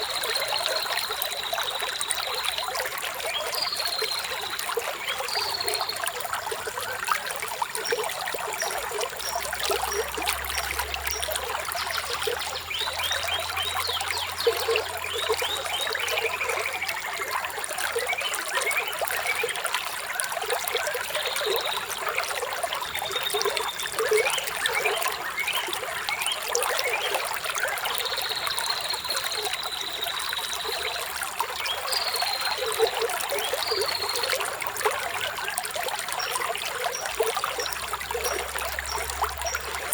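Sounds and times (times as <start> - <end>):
water trickling over stones: 0.0 - 39.9.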